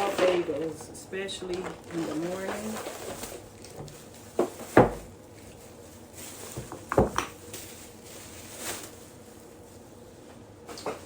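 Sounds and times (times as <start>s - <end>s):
items set down on hard surface: 6.5s - 7.4s.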